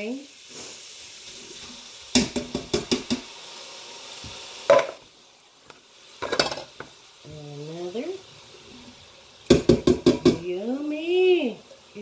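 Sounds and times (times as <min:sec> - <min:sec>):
meat sizzling: 0:00.0 - 0:12.0
knocks on a pot: 0:02.1 - 0:03.2, 0:09.5 - 0:10.4.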